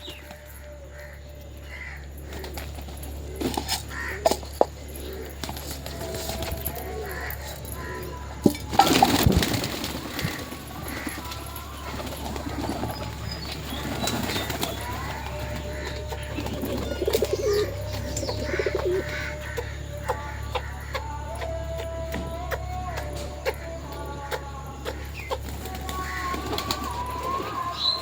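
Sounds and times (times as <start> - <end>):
pigeons cooing: 0.0 - 28.0
loud rustling: 1.8 - 19.5.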